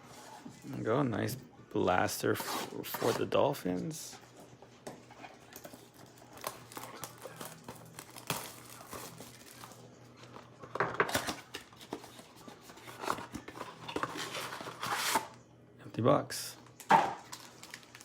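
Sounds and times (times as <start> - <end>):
foil wrappers crinkling: 5.5 - 15.3, 17.2 - 18.0.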